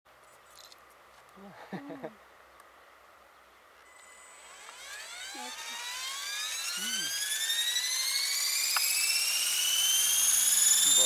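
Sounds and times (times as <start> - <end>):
model helicopter whine: 3.9 - 11.0.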